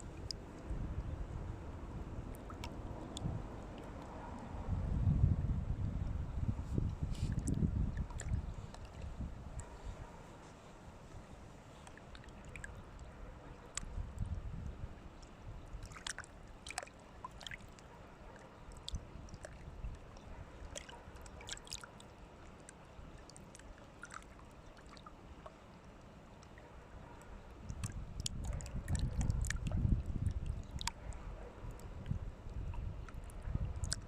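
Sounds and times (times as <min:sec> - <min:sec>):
small clicks and drips: 0:00.0 - 0:01.1, 0:02.3 - 0:04.6, 0:06.8 - 0:10.7, 0:11.7 - 0:34.0
wind rumble on microphone: 0:00.0 - 0:11.5, 0:12.3 - 0:16.0, 0:18.8 - 0:21.1, 0:27.0 - 0:34.0
water gurgling and sloshing: 0:00.0 - 0:34.0.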